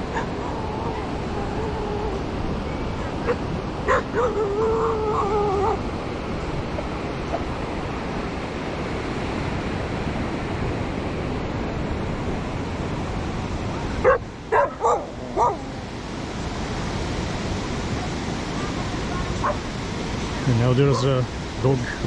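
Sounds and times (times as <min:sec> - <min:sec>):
surf washing: 0:00.0 - 0:22.0
dog barking: 0:03.0 - 0:05.8, 0:14.0 - 0:15.8, 0:18.6 - 0:19.6.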